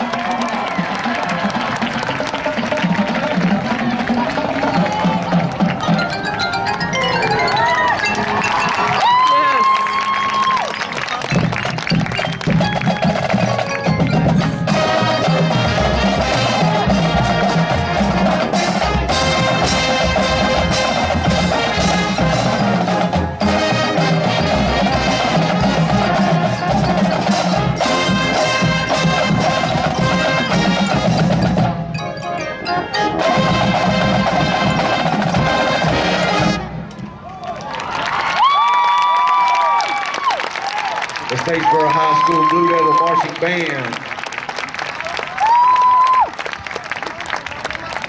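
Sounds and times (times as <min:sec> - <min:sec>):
drums: 0:00.0 - 0:32.2, 0:33.2 - 0:37.5
marching band playing: 0:00.0 - 0:37.3
mallet percussion: 0:02.7 - 0:37.0.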